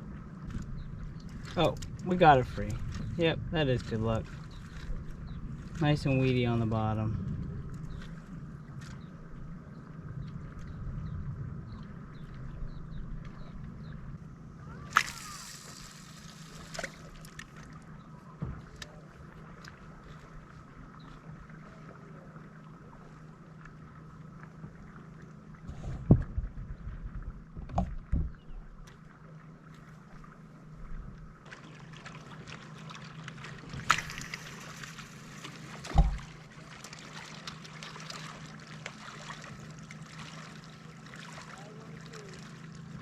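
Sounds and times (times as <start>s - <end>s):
dull knocks on kayak: 25.7s - 26.5s, 27.6s - 28.4s, 35.8s - 36.4s.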